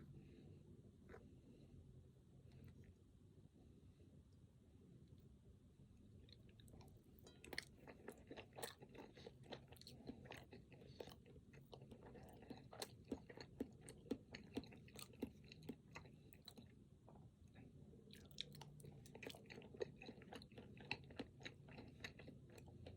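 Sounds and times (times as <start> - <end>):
close chewing with mouth clicks: 6.2 - 22.9.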